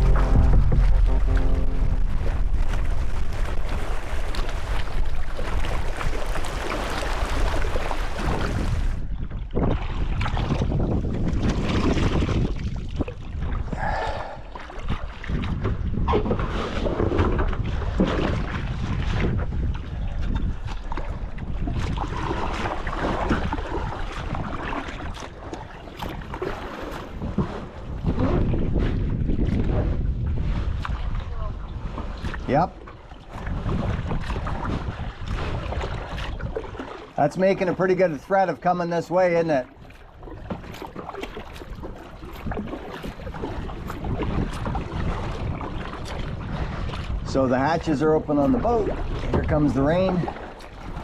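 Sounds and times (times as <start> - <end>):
wind buffeting microphone: 0.0 - 38.1, 39.7 - 51.0
water splashing and lapping: 0.0 - 51.0.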